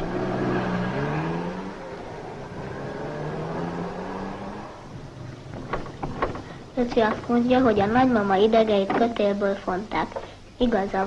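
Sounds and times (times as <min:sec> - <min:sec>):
car engine accelerating: 0:00.0 - 0:06.8
road noise: 0:00.0 - 0:11.0.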